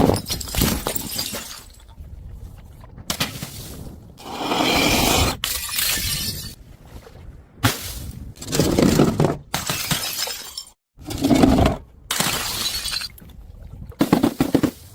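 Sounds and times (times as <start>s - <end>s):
glass shattering and crunching: 0.1s - 1.8s, 5.5s - 6.6s, 9.6s - 10.8s.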